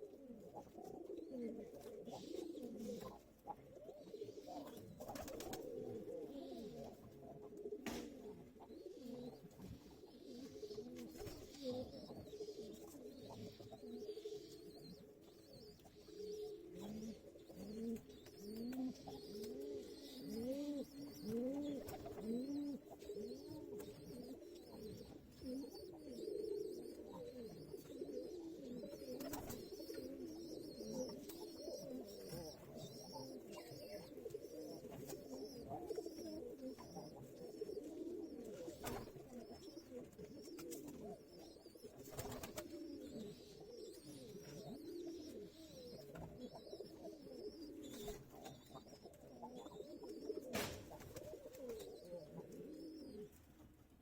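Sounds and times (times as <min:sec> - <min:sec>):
pigeons cooing: 0:00.0 - 0:54.0.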